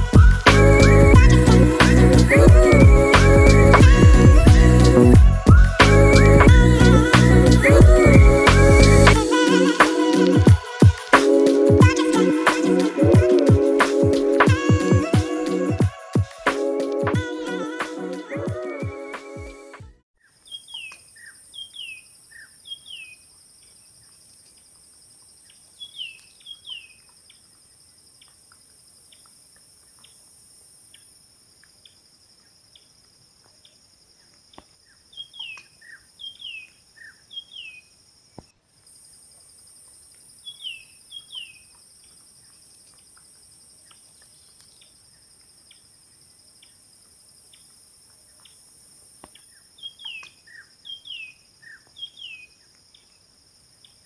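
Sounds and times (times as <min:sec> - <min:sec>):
bird whistled chirps: 0:49.8 - 0:52.5.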